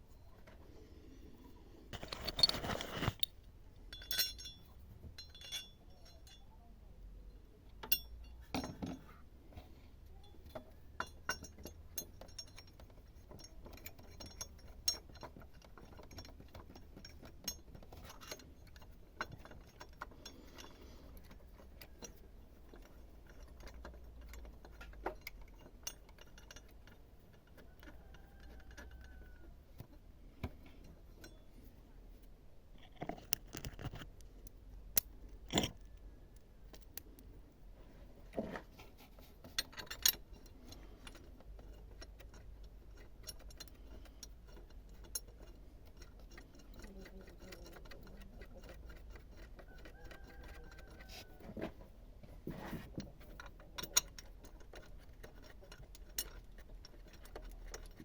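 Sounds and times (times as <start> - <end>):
handling noise: 2.0 - 3.4
tools clinking on metal: 2.0 - 6.6, 7.8 - 9.1, 10.2 - 29.5, 35.0 - 36.0, 39.4 - 51.4, 53.0 - 58.0.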